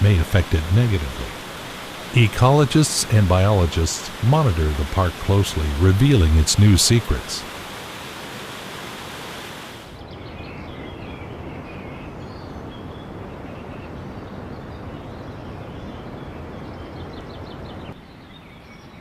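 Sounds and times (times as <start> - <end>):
birds chirping: 0.0 - 7.7, 10.0 - 19.0
rushing water: 0.0 - 10.0.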